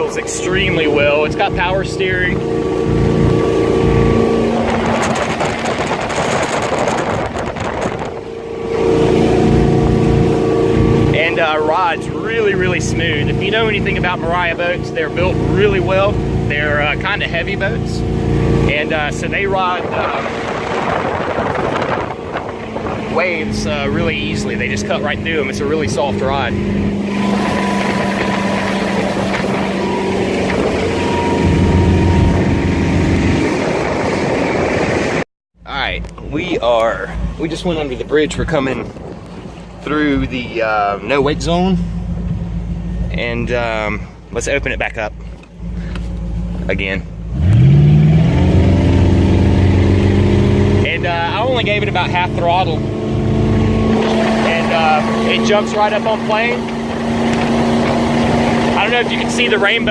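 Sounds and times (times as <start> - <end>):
rush of wind and water: 0.0 - 35.2, 47.5 - 59.9
boat engine droning: 0.0 - 59.9.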